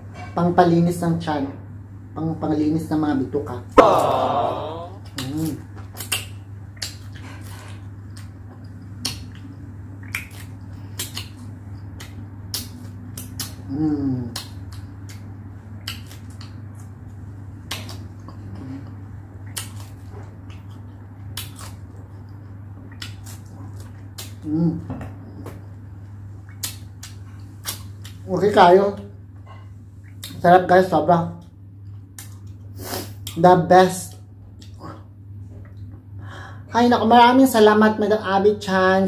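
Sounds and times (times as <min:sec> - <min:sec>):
steady low hum: 0:00.0 - 0:39.0
person humming: 0:03.8 - 0:05.1
crunchy chewing: 0:17.6 - 0:24.5.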